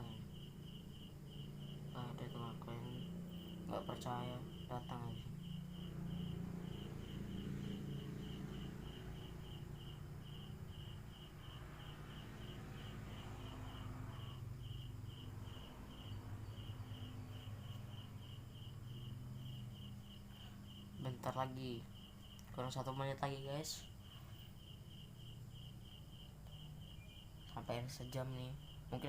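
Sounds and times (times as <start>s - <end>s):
cricket chirping: 0.0s - 29.0s.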